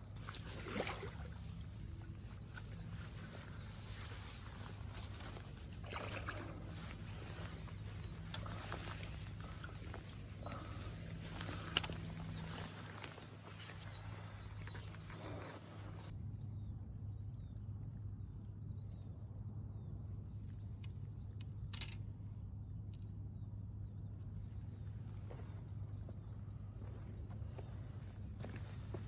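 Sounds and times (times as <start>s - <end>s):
low steady hum: 0.0s - 29.0s
birds chirping: 0.1s - 16.1s, 24.4s - 29.0s.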